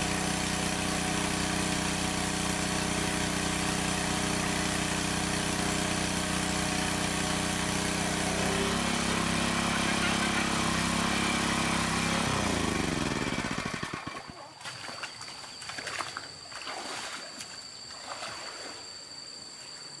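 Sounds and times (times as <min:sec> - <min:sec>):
small engine running: 0:00.0 - 0:14.6.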